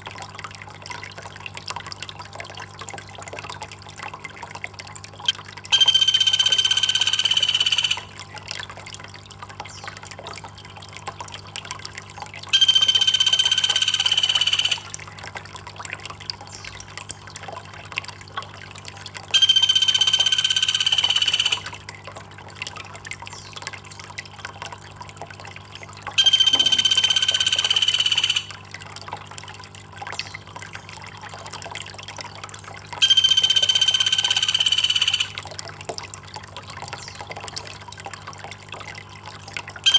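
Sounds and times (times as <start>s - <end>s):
water trickling and dripping: 0.0s - 39.9s
high-pitched held call: 5.3s - 8.1s, 12.6s - 14.9s, 19.4s - 21.8s, 26.2s - 28.6s, 33.0s - 35.4s.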